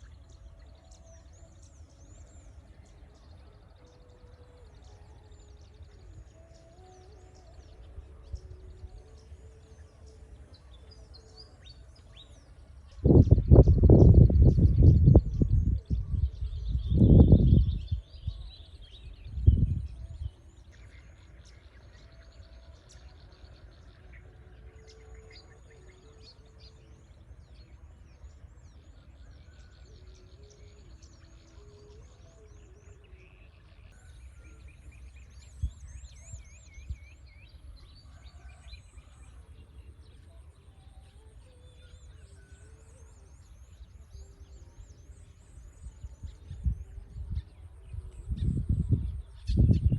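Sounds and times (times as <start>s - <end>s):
birds chirping and trilling: 0.0s - 49.9s
steady low rumble: 13.0s - 18.4s.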